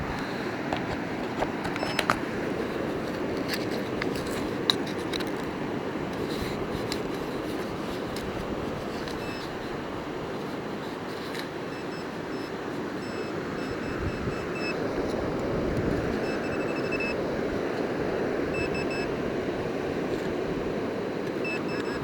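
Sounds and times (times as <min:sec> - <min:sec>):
metal detector beeps: 0:01.7 - 0:02.2, 0:08.2 - 0:09.7, 0:11.3 - 0:15.2, 0:16.1 - 0:17.2, 0:18.5 - 0:19.2, 0:21.3 - 0:22.0.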